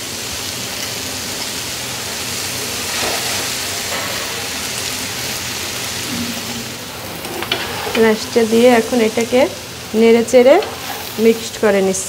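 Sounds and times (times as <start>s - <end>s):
vegetables sizzling in oil: 0.0s - 12.0s
spatula scraping colander: 6.0s - 9.2s, 10.3s - 11.6s.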